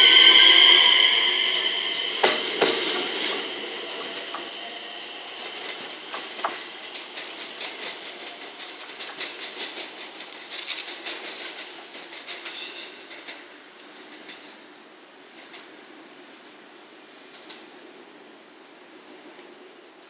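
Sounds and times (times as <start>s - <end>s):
train wheels clacking over rail joints: 1.5s - 16.2s.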